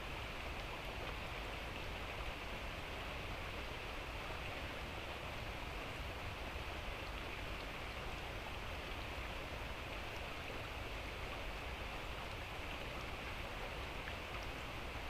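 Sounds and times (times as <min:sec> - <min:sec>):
light rain hiss: 0:00.0 - 0:15.0
faint drip ticks: 0:14.0 - 0:14.7.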